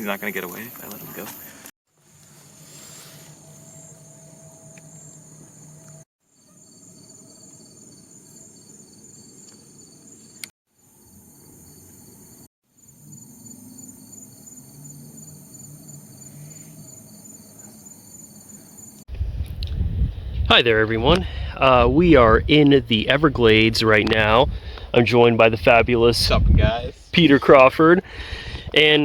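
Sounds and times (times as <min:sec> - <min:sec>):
crickets and katydids trilling: 0:02.2 - 0:19.0.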